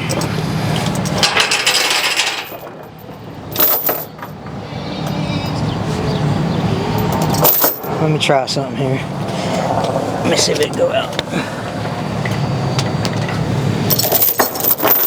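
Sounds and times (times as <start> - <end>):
engine running steadily: 0.0 - 15.0
metal chains clinking and rattling: 1.0 - 5.6, 6.9 - 8.0, 13.9 - 15.0.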